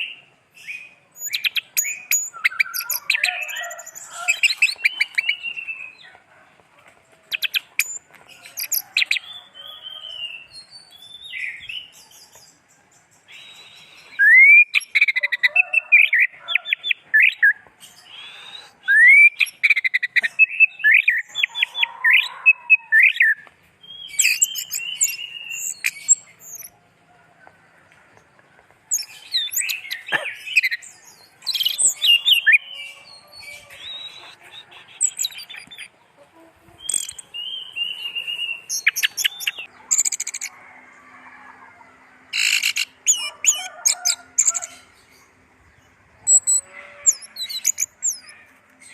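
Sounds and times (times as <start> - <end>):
bird singing whistled phrases: 13.4 - 15.1, 18.2 - 21.7.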